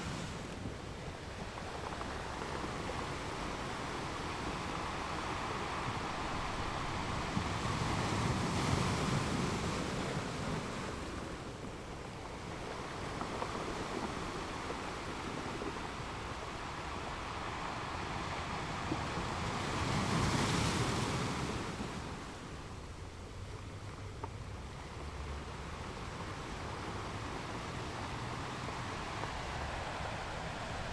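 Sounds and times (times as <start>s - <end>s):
ocean surf washing onto shore: 0.0s - 23.1s, 24.7s - 30.9s.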